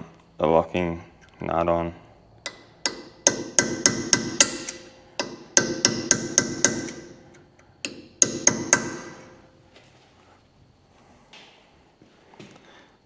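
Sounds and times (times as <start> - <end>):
hammer striking steel: 2.5 - 9.6.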